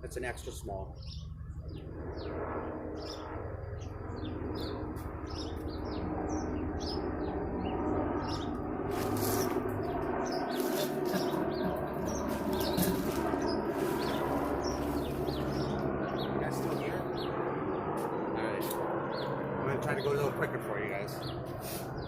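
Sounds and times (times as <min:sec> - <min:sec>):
small birds chirping: 0:00.0 - 0:22.0
steady rushing noise: 0:08.2 - 0:17.1
rustling: 0:08.9 - 0:09.6, 0:12.2 - 0:15.5.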